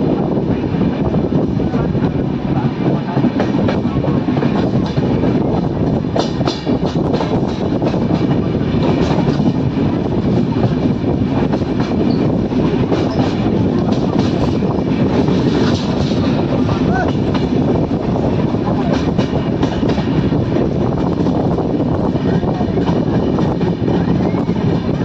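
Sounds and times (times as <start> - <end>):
rumble of train wheels on rail: 0.0 - 25.0
coaches rattling and clacking: 2.8 - 25.0.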